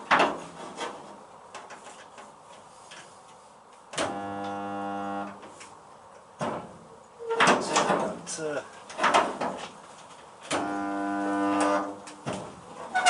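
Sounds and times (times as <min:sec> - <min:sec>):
electrical welding buzz: 0:04.0 - 0:05.4, 0:10.5 - 0:12.2.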